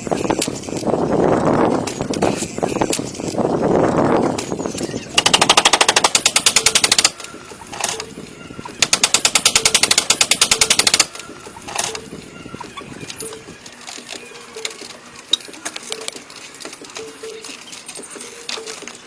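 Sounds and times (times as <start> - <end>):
power tool hammering wood: 5.2 - 7.3.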